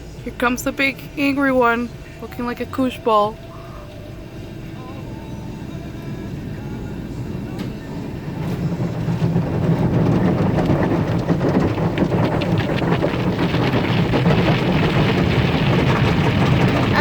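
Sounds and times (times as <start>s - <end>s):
car wash brushes rumbling: 0.0s - 17.0s
cloth strips and water lashing car: 4.9s - 17.0s.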